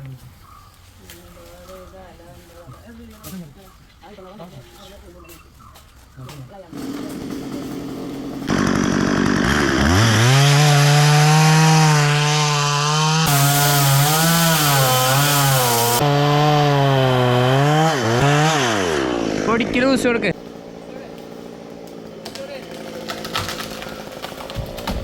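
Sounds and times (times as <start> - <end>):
chainsaw cutting wood: 6.7 - 20.8, 21.5 - 25.0.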